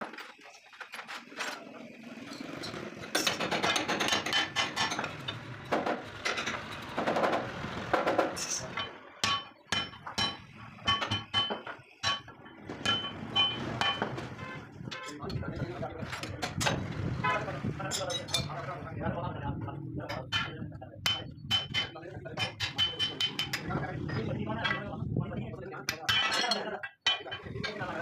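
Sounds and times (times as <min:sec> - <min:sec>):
hammer striking steel: 0:08.3 - 0:14.2, 0:20.2 - 0:23.7.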